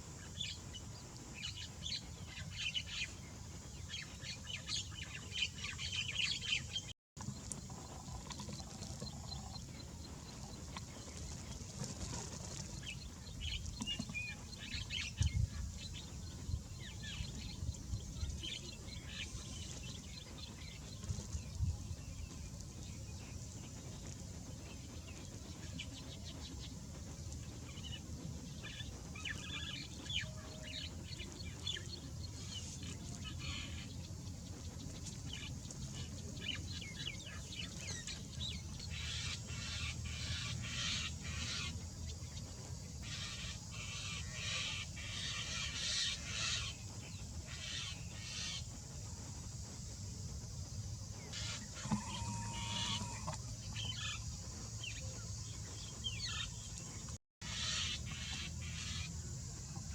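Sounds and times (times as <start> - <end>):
steady low rumble: 0.0 - 51.8
birds chirping and clucking: 51.2 - 59.1.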